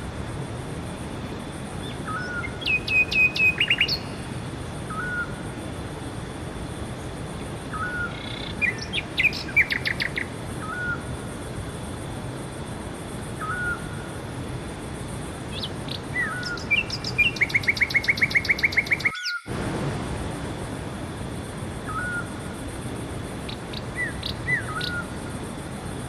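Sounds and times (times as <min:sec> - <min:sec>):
fast bird trill: 0:01.8 - 0:04.2, 0:15.5 - 0:19.5
songbirds chirping: 0:01.8 - 0:04.2, 0:07.4 - 0:11.0, 0:15.5 - 0:19.5, 0:23.5 - 0:25.1
steady rushing background: 0:19.5 - 0:26.0.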